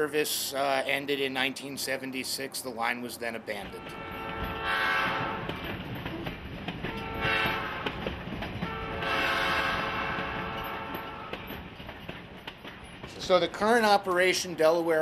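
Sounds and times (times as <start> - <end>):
moving train rumble: 0.0 - 15.0
train horn blasts: 3.8 - 5.6, 6.9 - 8.0, 8.6 - 11.6.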